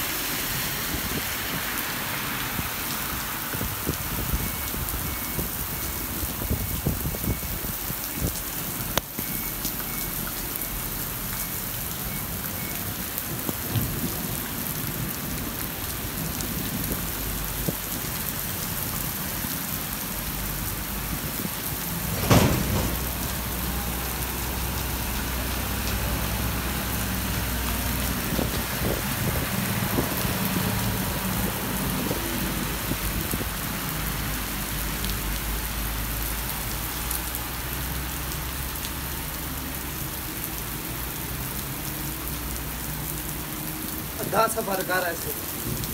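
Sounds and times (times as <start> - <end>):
heavy rain on a street: 0.0 - 45.9
thunder crack and rumble: 21.2 - 24.8.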